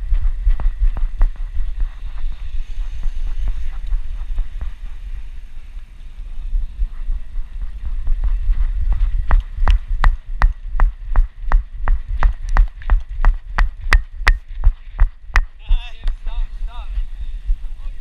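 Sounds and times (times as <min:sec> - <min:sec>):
low rumble of camera jostling: 0:00.0 - 0:18.0.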